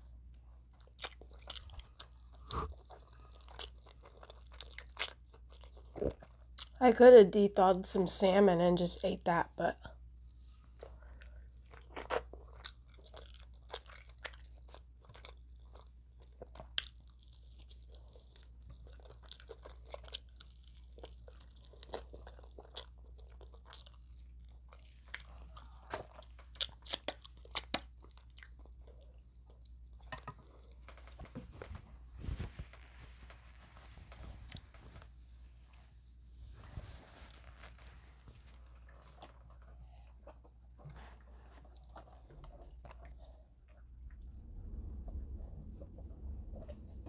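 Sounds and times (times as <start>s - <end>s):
low steady hum: 0.0s - 47.0s
crunching fried chicken: 0.8s - 6.8s, 11.0s - 31.2s.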